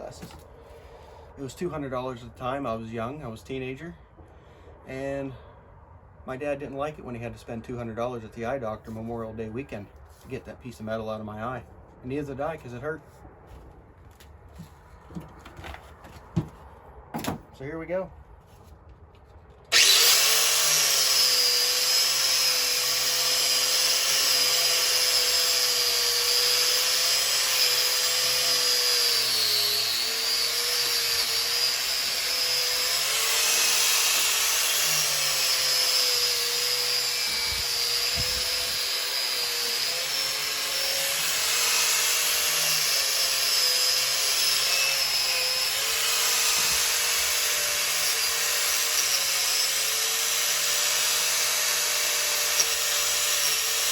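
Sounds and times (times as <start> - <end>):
electric power tool running: 19.7 - 53.9.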